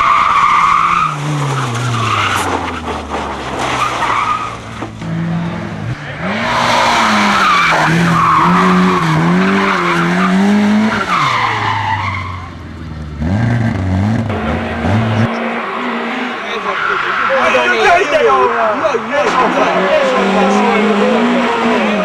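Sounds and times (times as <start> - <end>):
race car engine revving: 4.6 - 22.0.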